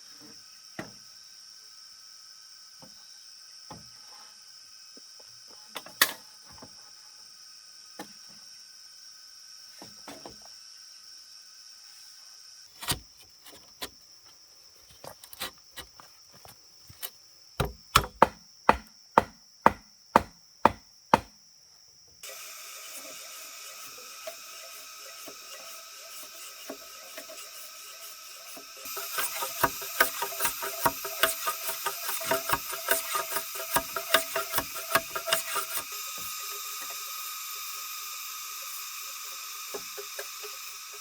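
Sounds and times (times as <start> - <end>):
high insect drone: 0.0 - 41.0
wood chopping with a blade: 12.8 - 13.1, 17.6 - 21.4, 28.6 - 36.4.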